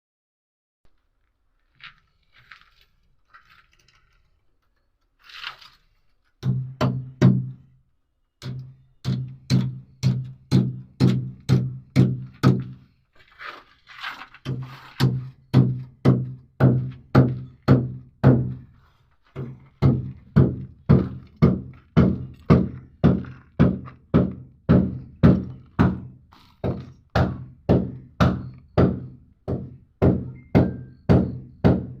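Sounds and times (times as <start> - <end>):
heavy rhythmic ringing thuds: 19.4 - 32.0.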